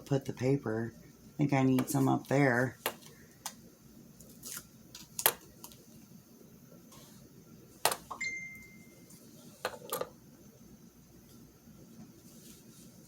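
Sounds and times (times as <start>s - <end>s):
faint thin tone: 8.2s - 9.2s
paper handled on a tabletop: 12.1s - 13.0s.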